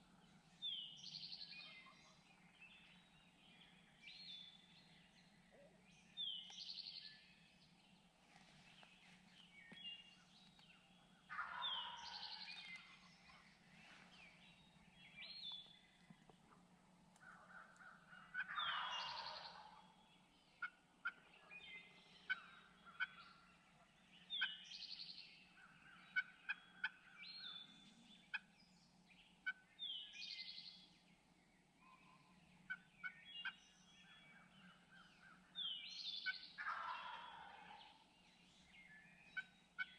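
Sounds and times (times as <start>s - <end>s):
small birds chirping: 0.0s - 39.9s
turkeys gobbling: 11.3s - 12.4s, 17.9s - 19.9s, 36.6s - 38.0s.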